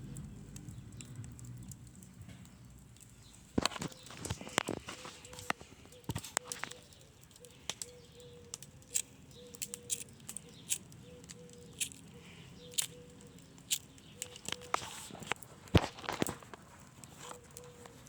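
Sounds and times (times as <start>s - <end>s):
campfire crackling: 0.0s - 18.0s.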